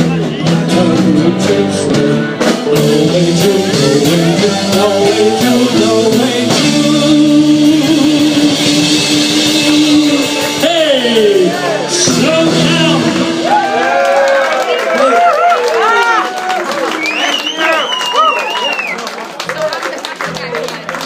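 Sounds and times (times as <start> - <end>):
melodic lead line: 0.0 - 15.0
live rock band playing: 0.0 - 21.0.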